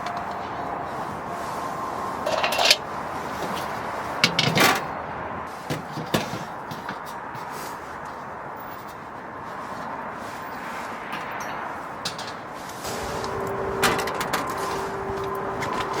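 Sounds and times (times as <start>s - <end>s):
background hiss: 12.8s - 16.0s.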